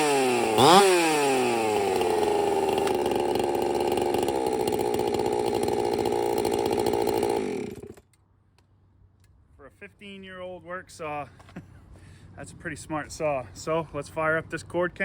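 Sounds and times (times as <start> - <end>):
chainsaw running: 0.0 - 8.1.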